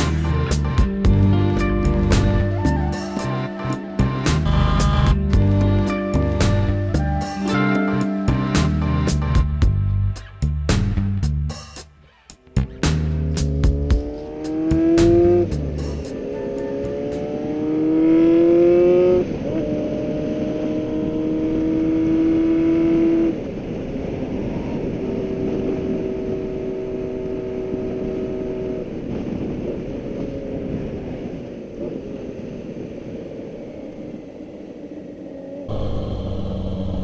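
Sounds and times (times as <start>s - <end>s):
wind noise: 0.0s - 11.7s, 12.5s - 37.0s
radial engine and propeller drone: 2.6s - 9.0s, 23.4s - 37.0s.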